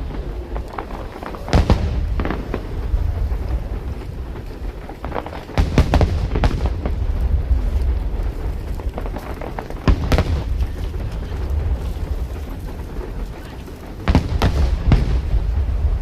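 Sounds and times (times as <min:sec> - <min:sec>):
continuous low rumble: 0:00.0 - 0:16.0
fireworks booming: 0:00.0 - 0:16.0.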